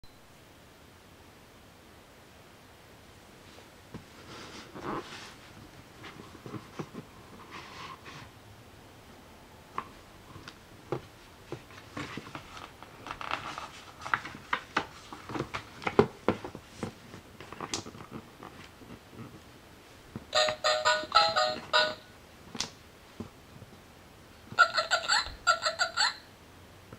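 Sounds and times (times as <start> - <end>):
book rustling: 10.3 - 19.5.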